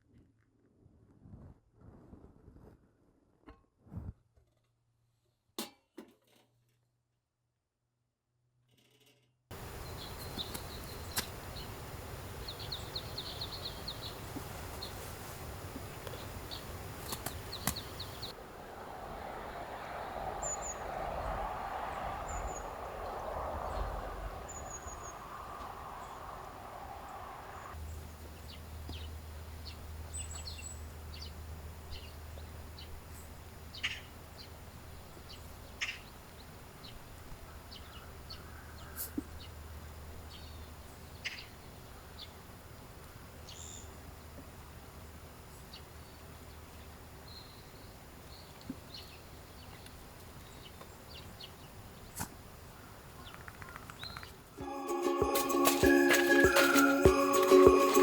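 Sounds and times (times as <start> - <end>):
small birds chirping: 9.6 - 18.4, 20.0 - 21.4, 22.0 - 39.6, 45.6 - 54.6
steady rushing noise: 18.2 - 27.8
scattered clicks and taps: 54.6 - 58.0.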